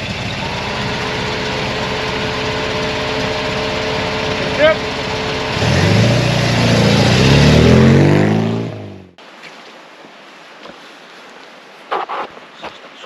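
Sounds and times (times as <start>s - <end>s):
car engine accelerating: 0.0s - 9.2s
quiet outdoor background: 0.0s - 13.0s.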